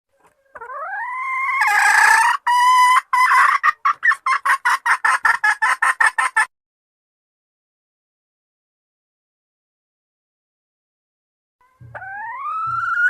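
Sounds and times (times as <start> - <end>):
junglefowl hen calling: 0.1 - 6.5, 11.6 - 13.0.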